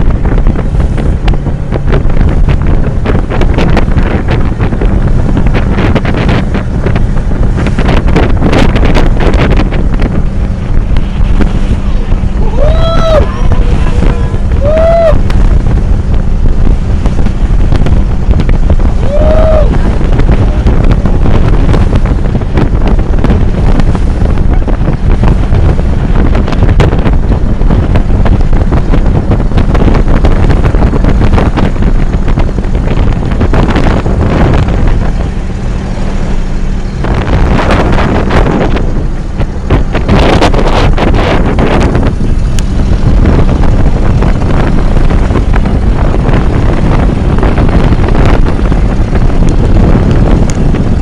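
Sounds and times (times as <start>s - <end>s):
boat engine running: 0.0s - 51.0s
wind buffeting microphone: 0.0s - 51.0s.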